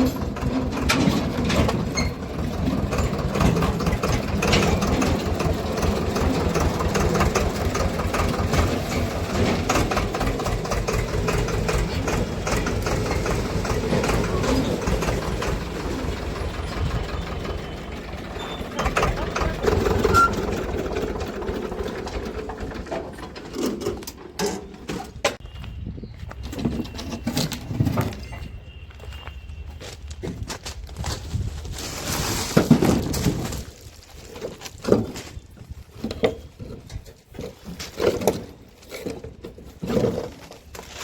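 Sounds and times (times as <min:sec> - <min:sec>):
tractor diesel engine chugging: 0:00.0 - 0:25.2.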